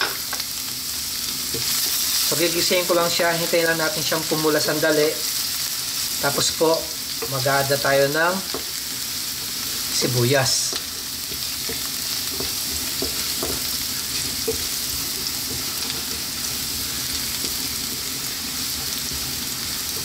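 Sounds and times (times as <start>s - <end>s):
food sizzling in hot oil: 0.0s - 20.0s
wooden spatula knocking: 10.6s - 17.6s.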